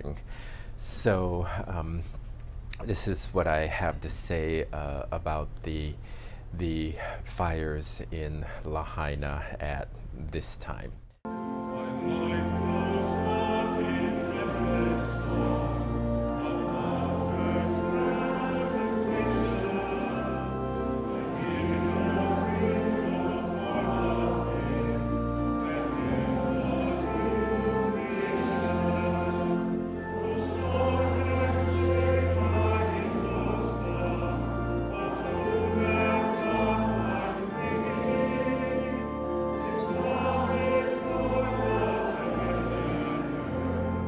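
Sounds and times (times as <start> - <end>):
choir singing: 11.3 - 44.0.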